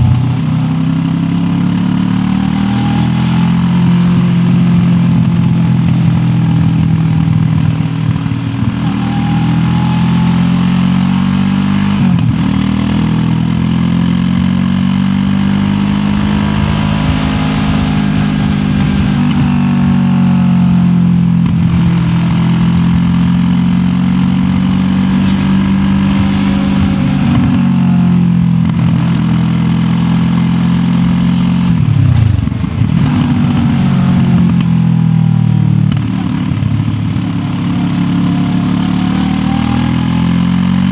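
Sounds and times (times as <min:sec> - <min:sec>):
motorcycle engine revving: 0:00.0 - 0:40.9
wind rush: 0:15.8 - 0:20.0, 0:24.1 - 0:29.3.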